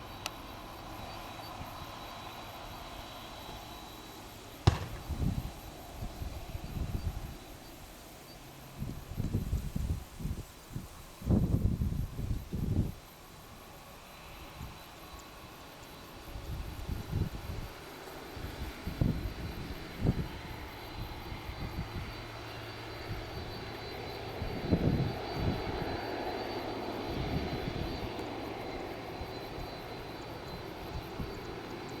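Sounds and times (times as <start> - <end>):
short low thumps: 4.7 - 5.4
jet engines rushing and whining: 17.1 - 32.0.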